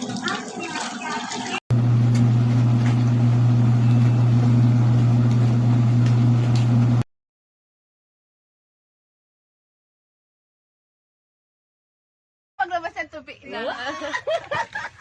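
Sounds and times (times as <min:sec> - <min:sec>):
washing machine motor humming: 0:00.0 - 0:07.1.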